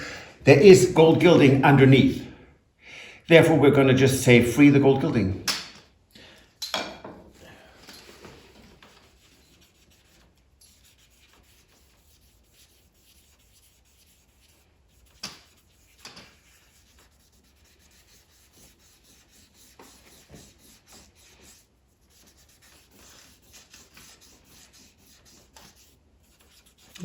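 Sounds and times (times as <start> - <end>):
faint rubbing on wood frame: 8.1 - 27.0.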